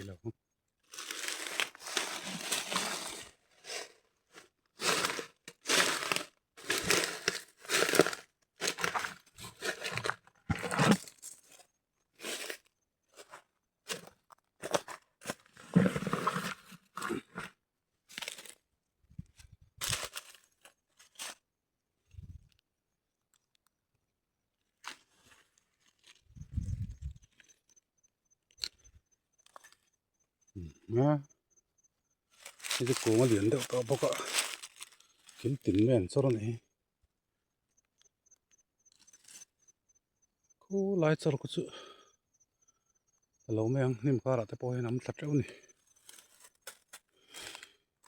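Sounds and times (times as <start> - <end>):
crunching and tearing: 0.9 - 11.6, 13.9 - 18.6, 19.8 - 21.4, 24.8 - 26.3, 32.4 - 35.6.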